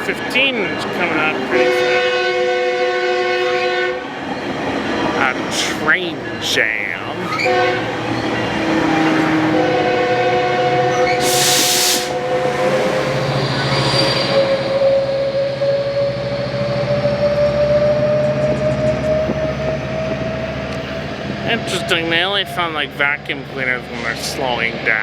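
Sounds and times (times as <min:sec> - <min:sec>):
locomotive engine whine: 0:00.0 - 0:25.0
train horn chord: 0:01.1 - 0:04.1, 0:07.3 - 0:13.5
short hiss: 0:11.2 - 0:12.2.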